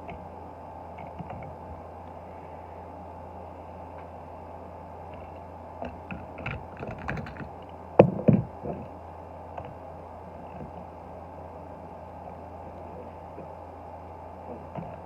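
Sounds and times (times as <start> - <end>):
steady low hum: 0.0 - 15.0
toy cars clicking and tapping: 6.5 - 7.5.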